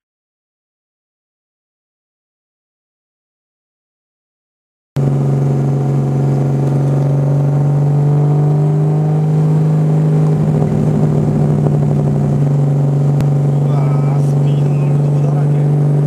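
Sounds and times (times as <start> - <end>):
race car engine running loudly: 5.0 - 16.0.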